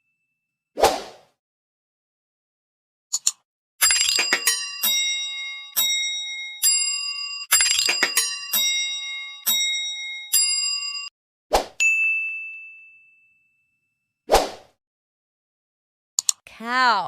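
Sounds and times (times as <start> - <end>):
metallic chimes ringing: 3.8 - 11.1, 11.8 - 14.0.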